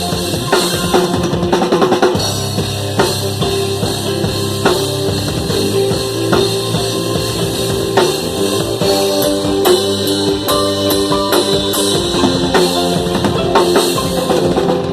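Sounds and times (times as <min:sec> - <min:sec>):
bass and guitar: 0:00.0 - 0:14.9
drum kit playing: 0:00.0 - 0:14.9.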